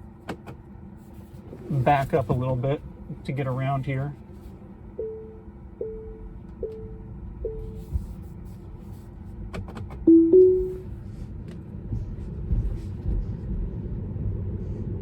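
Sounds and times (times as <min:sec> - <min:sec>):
two-tone cabin chime: 0:10.1 - 0:10.9.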